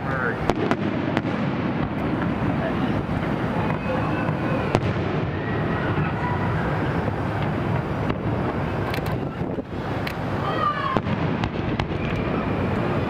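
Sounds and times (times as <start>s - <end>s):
fireworks booming and crackling: 0.0s - 13.0s
sharp firework cracks: 0.0s - 13.0s.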